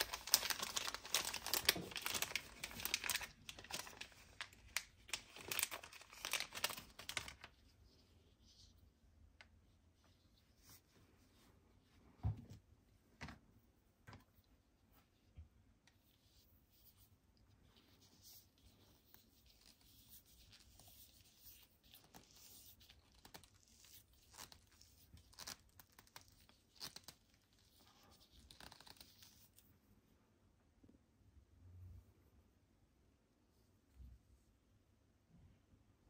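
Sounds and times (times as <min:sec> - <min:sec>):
wrapping tearing and crinkling: 0:00.0 - 0:07.6, 0:19.0 - 0:29.5.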